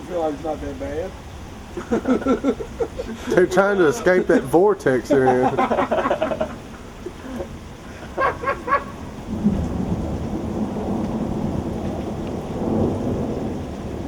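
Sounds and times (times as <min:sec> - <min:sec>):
heavy rain pouring: 0:00.0 - 0:14.0
thunder rolling: 0:07.5 - 0:14.0.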